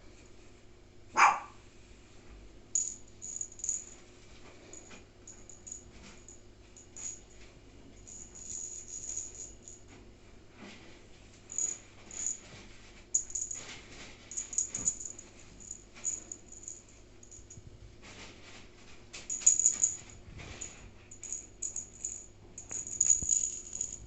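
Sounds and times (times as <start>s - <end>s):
jingling toy shaken: 2.8s - 4.0s, 4.7s - 7.4s, 8.0s - 9.8s, 11.5s - 12.4s, 13.2s - 13.7s, 14.3s - 17.6s, 19.3s - 24.0s.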